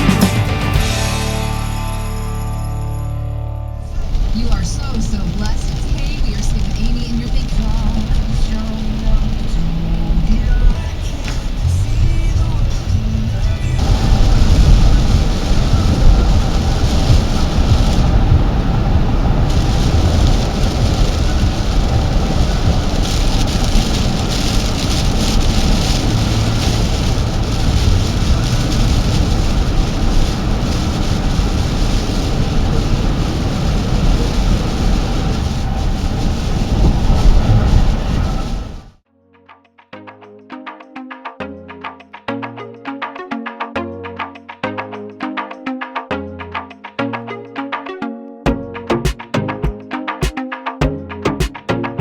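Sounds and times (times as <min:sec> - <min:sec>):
deep rumble: 0:00.0 - 0:39.0
heavy rain rushing: 0:03.9 - 0:39.0.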